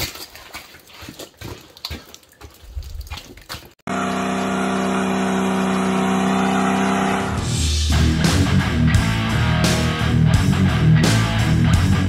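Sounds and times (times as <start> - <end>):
car engine at high revs: 3.9 - 7.7.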